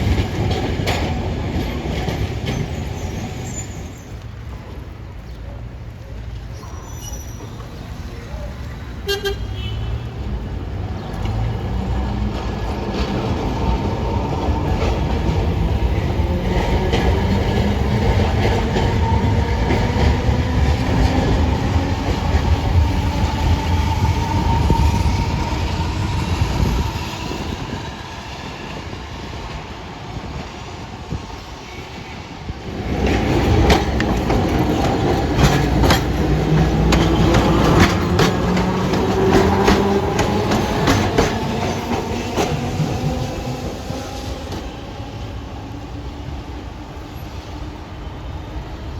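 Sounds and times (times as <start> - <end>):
tram rumbling with motor whine: 32.6 - 48.9
wheels clicking over rail joints: 32.8 - 43.2.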